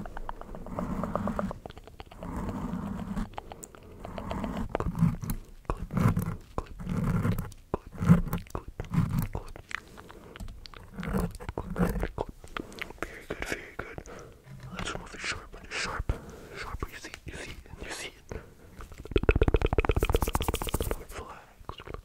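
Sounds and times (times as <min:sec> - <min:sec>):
wet mouth clicks and smacks: 0:00.0 - 0:00.7, 0:01.4 - 0:02.3, 0:03.2 - 0:05.8, 0:07.4 - 0:15.7, 0:18.3 - 0:22.0.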